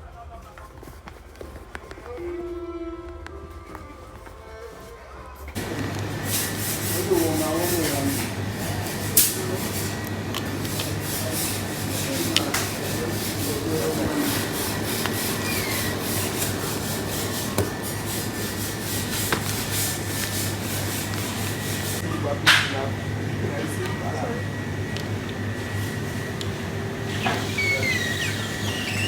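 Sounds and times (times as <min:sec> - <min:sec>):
faint voices: 0:00.0 - 0:29.0
rustling noise: 0:00.1 - 0:22.0.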